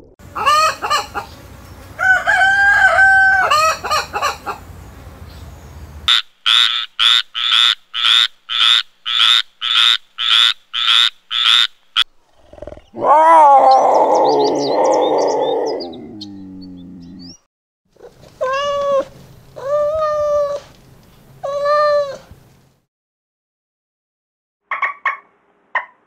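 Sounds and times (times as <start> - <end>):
chickens clucking: 0.3 - 4.7, 24.7 - 26.0
rooster crowing: 2.0 - 4.6
tree frog croaking: 6.1 - 13.0.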